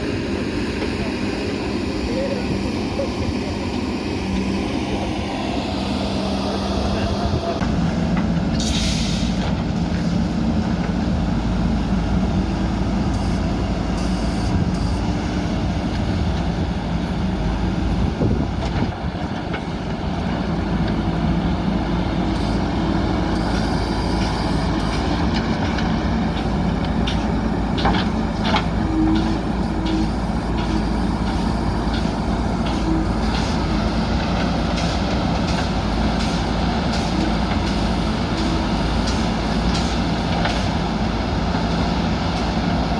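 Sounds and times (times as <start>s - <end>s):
diesel engines running under load: 0.0s - 42.9s.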